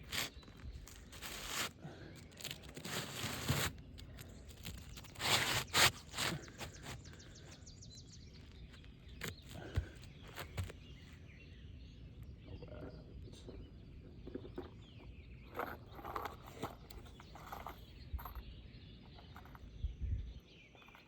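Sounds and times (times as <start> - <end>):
roof shingles scraping and crackling: 0.0 - 7.4.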